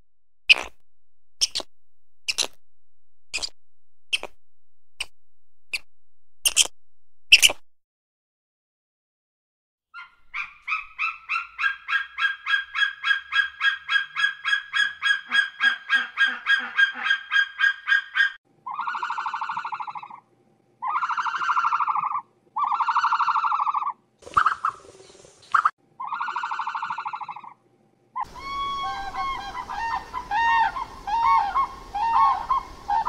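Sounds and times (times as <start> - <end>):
bird yelping notes: 10.0 - 20.2, 28.2 - 33.0.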